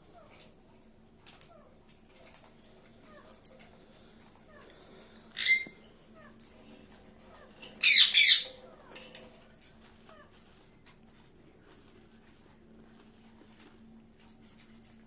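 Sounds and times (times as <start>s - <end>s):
parakeet squawking: 5.4s - 5.8s, 7.8s - 8.5s.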